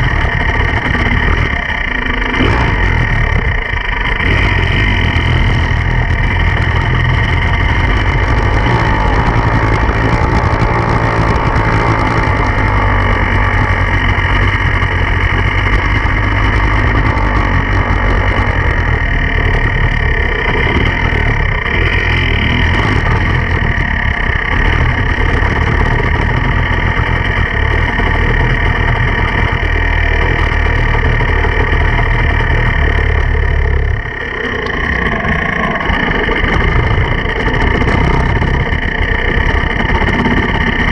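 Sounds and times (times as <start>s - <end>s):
dirt bike engine running: 0.0s - 40.9s.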